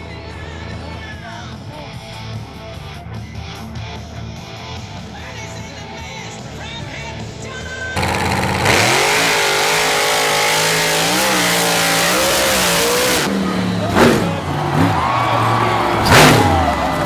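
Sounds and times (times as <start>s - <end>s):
small engine revving: 8.0s - 17.0s.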